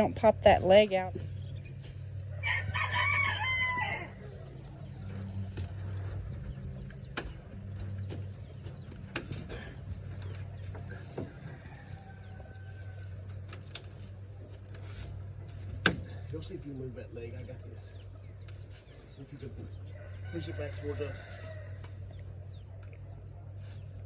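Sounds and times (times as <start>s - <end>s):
steady low hum: 0.0s - 24.0s
rooster crowing: 2.4s - 4.3s
sharp clicks and knocks: 7.0s - 9.5s.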